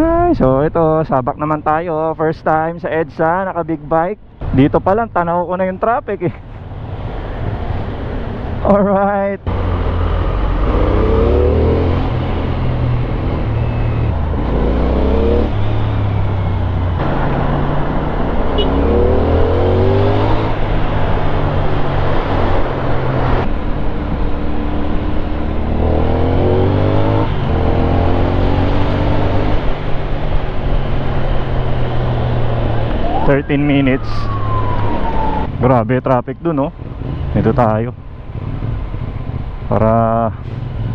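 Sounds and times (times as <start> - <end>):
road noise: 0.0 - 40.9
motorcycle engine revving: 9.5 - 35.7.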